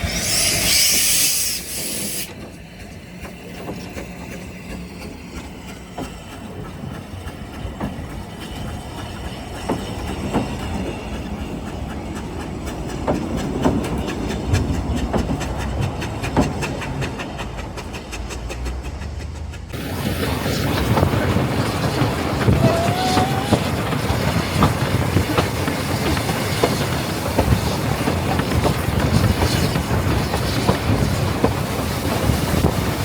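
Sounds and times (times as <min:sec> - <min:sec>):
loud hiss of steam: 0:00.0 - 0:02.4, 0:19.8 - 0:24.6
train rumbling: 0:00.0 - 0:33.0.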